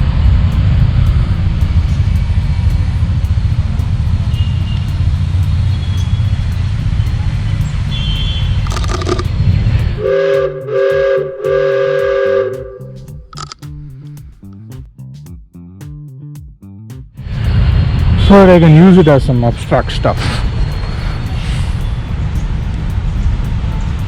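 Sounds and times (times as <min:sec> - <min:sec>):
low rumble: 0:00.0 - 0:24.0
two-tone horn blasts: 0:07.9 - 0:09.3, 0:10.0 - 0:13.5.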